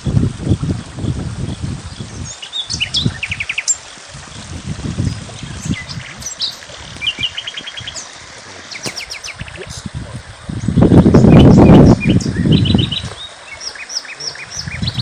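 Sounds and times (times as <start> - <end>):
small birds chirping: 1.0 - 15.0.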